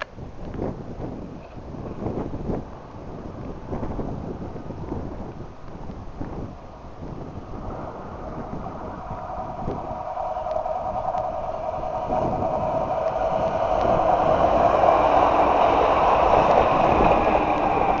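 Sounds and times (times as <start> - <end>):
electric train approaching: 6.4 - 18.0
faint clicks from rails: 9.1 - 18.0.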